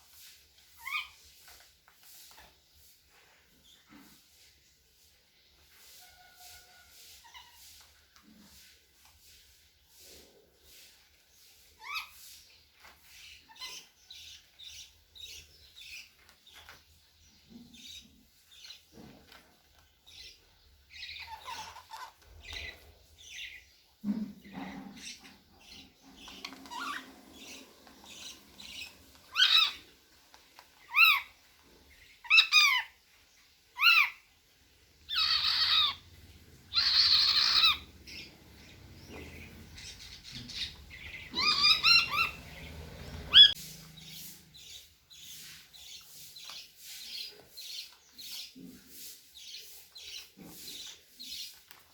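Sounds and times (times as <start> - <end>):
cockatiel chirping and whistling: 28.7 - 29.8, 35.1 - 36.0, 36.7 - 38.3, 39.8 - 42.4, 43.3 - 43.6.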